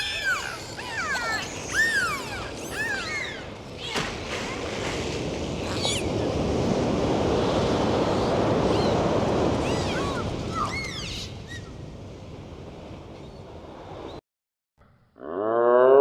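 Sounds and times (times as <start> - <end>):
high-pitched animal calls: 0.0 - 3.4.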